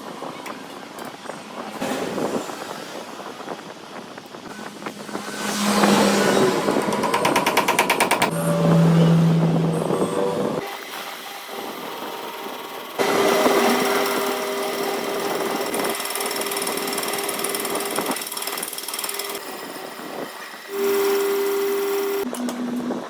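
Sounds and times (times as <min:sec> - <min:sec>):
machine whining and humming: 0:00.0 - 0:23.0
grinding noise: 0:01.6 - 0:18.3.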